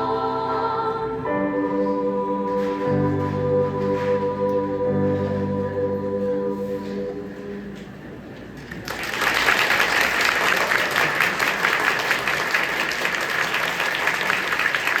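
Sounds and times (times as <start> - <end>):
audience applauding: 8.7 - 15.0.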